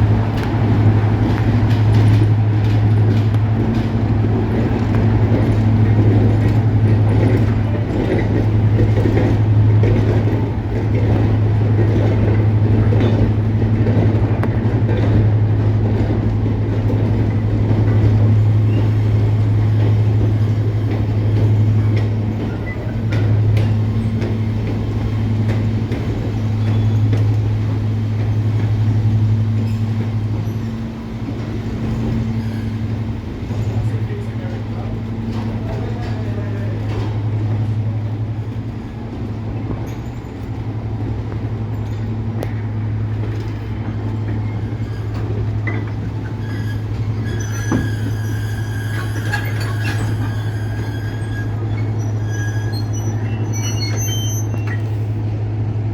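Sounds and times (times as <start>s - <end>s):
diesel locomotive engines droning: 0.0s - 55.9s.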